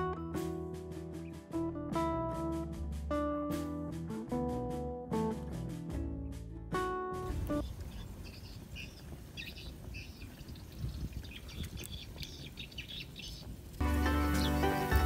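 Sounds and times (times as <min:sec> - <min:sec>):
guitar music: 0:00.0 - 0:07.6, 0:13.8 - 0:15.0
small birds chirping: 0:07.3 - 0:15.0.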